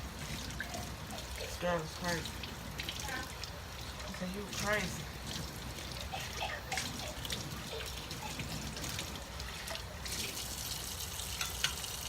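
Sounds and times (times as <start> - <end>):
tap water running into sink: 0.0 - 12.0
dishes clinking: 11.4 - 11.9.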